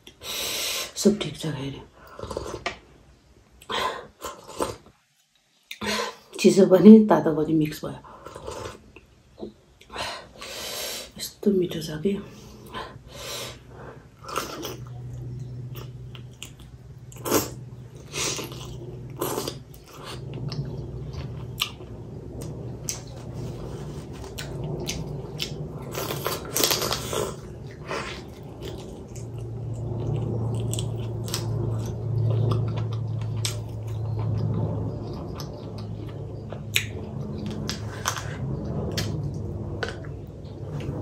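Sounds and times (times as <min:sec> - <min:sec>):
low hum: 0:00.9 - 0:41.0.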